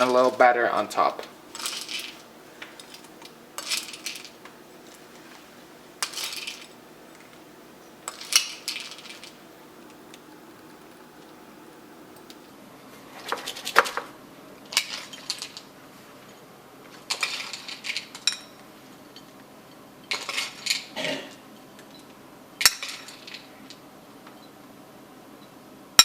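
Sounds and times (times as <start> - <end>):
spoon clinking against dishes: 1.3 - 12.5.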